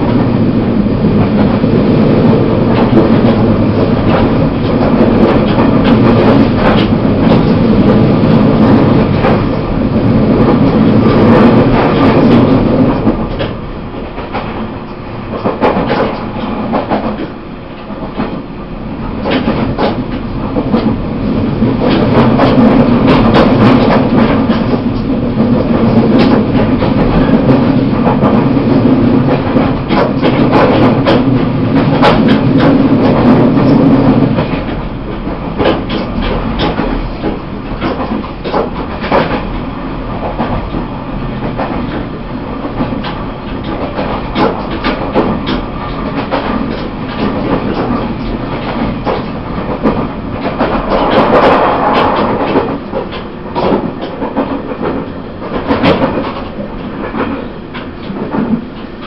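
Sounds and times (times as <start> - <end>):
train wheels rumbling on track: 0.0 - 59.0
sharp clicks and knocks: 2.7 - 9.6, 14.2 - 17.4, 19.2 - 21.0, 21.8 - 34.8, 35.6 - 39.6, 42.7 - 58.9.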